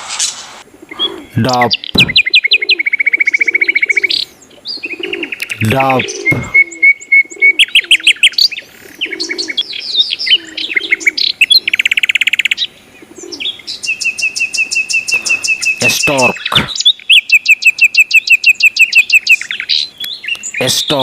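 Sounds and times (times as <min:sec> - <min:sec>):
songbirds chirping and trilling: 0:00.0 - 0:21.0
faint low dove cooing: 0:00.7 - 0:13.7, 0:15.0 - 0:15.8.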